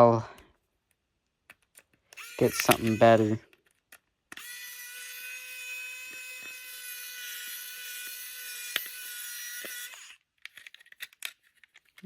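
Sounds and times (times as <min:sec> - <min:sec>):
power tool motor whining: 0:02.1 - 0:03.5, 0:04.3 - 0:10.2.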